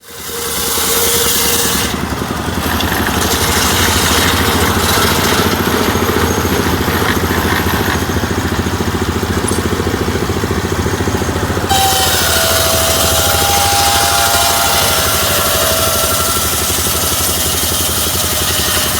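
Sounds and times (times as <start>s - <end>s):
small engine running: 0.0s - 18.9s
high whining tone: 8.7s - 18.9s.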